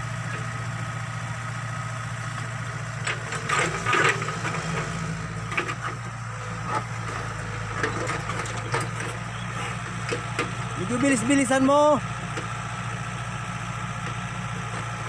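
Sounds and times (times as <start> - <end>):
backhoe engine running: 0.0 - 15.0
digging knocks and clunks: 6.6 - 11.2.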